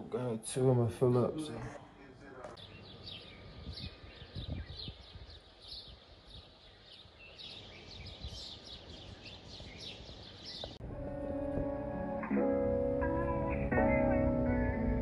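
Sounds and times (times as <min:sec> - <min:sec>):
faint bird chirping: 0:01.9 - 0:10.8.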